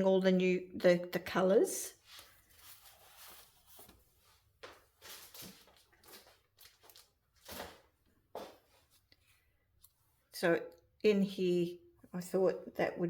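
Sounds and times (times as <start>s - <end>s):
paper sheets rustling: 2.0s - 9.1s.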